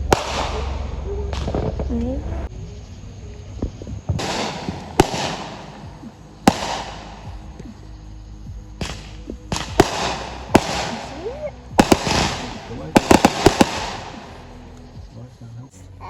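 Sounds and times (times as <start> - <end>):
fireworks bangs: 0.0 - 2.3, 3.6 - 7.9, 8.5 - 14.7
fireworks crackling: 0.0 - 15.0.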